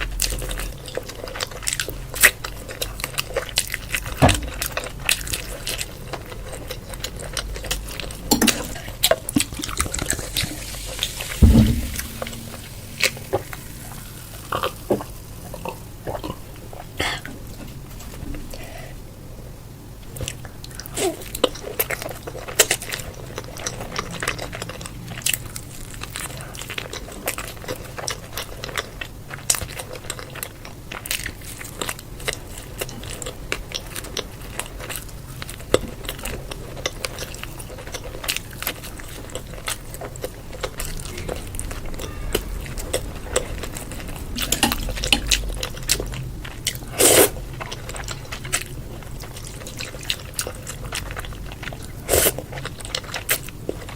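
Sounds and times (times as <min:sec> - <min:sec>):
person chewing crunchy food: 0:20.2 - 0:53.9.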